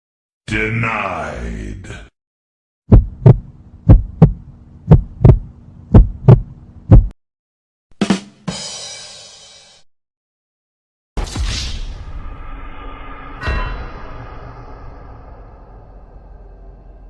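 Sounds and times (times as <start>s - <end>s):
low steady hum: 2.9s - 7.1s
heartbeat thumps: 2.9s - 7.2s
brief hit: 11.3s - 16.8s.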